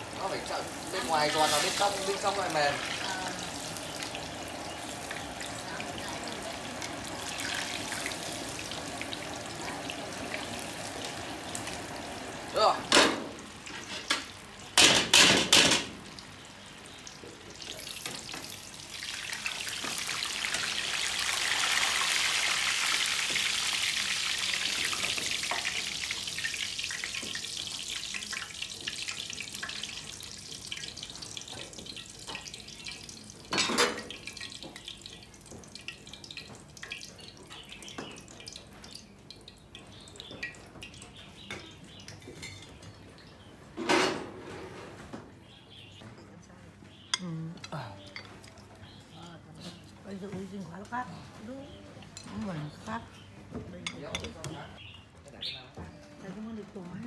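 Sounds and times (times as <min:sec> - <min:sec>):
tofu sizzling in hot oil: 0:00.0 - 0:12.7, 0:15.9 - 0:38.7
metal ladle clanking on pan: 0:13.8 - 0:15.9.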